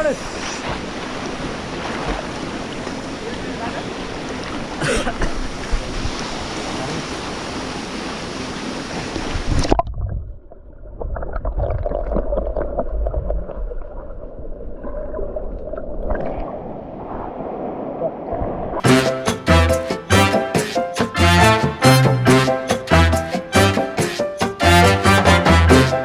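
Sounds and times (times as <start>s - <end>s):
muffled low rumble with gurgling: 9.4s - 17.4s.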